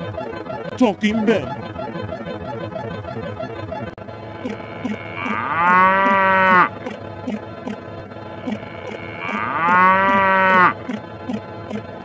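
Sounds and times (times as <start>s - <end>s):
moo-like call: 4.4s - 7.8s, 8.4s - 11.8s.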